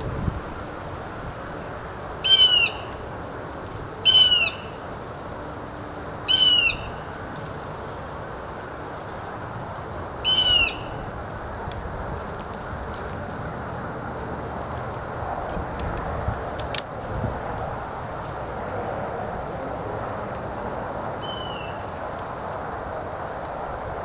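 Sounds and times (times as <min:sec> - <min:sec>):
outdoor background noise: 0:00.0 - 0:24.0
bird calling falling note: 0:10.2 - 0:10.9.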